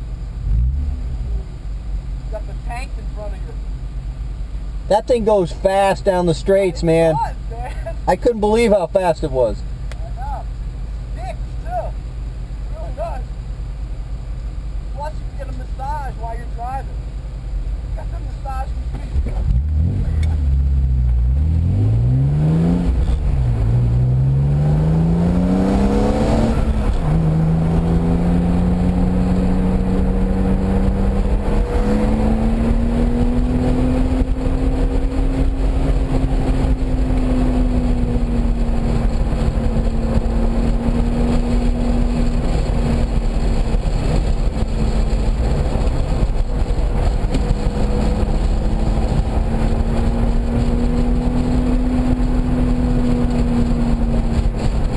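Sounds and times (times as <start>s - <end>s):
car engine revving hard: 19.2s - 54.9s.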